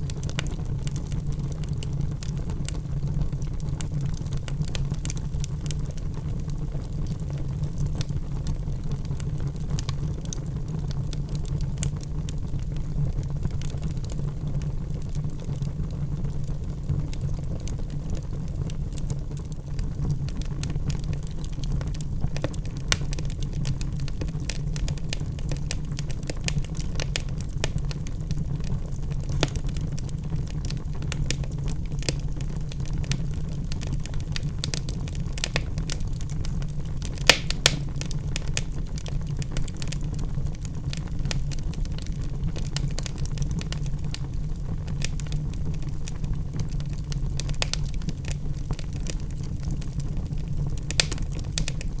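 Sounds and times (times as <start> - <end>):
wood fire crackling: 0.0 - 52.0
sharp fire pops: 29.2 - 40.0, 50.8 - 52.0.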